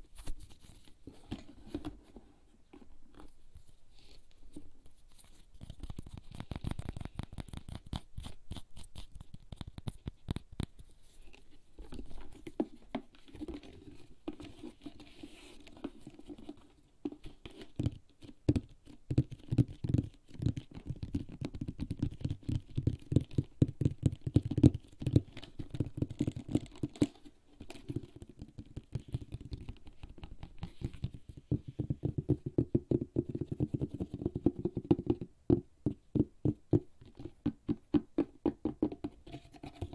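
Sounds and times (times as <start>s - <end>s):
fingertips tapping on leather bag: 17.0s - 39.9s.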